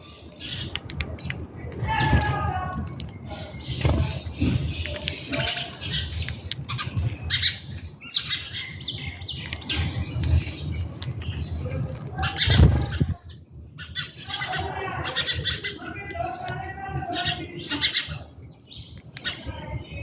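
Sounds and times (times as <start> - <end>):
birds squawking and chirping: 0.0 - 20.0.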